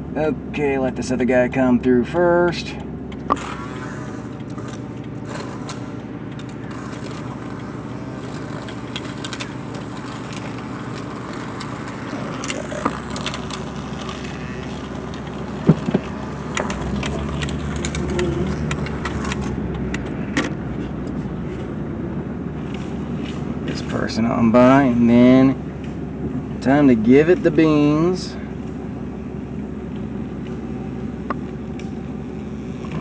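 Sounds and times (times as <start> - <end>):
truck engine idling: 0.0 - 33.0
sharp clicks: 3.1 - 20.6.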